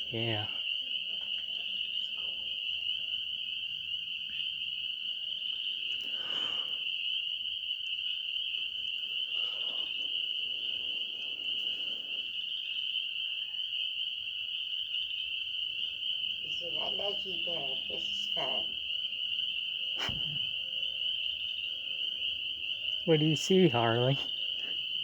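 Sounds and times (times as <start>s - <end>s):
animals trilling: 8.9s - 12.8s, 15.4s - 25.0s.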